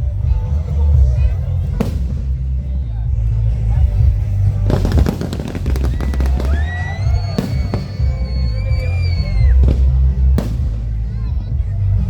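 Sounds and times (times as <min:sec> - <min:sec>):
fireworks crackling: 0:00.0 - 0:12.0
firework bangs: 0:01.6 - 0:02.8, 0:04.0 - 0:12.0
firework whistle: 0:05.1 - 0:10.7.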